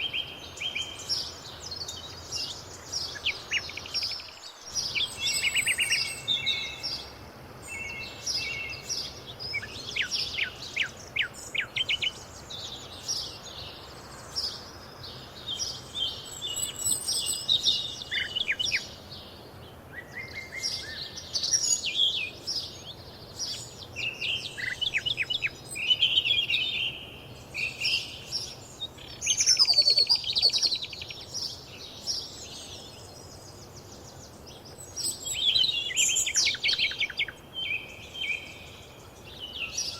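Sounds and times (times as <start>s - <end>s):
faint background hiss: 0.0s - 39.9s
songbirds singing: 0.0s - 39.9s.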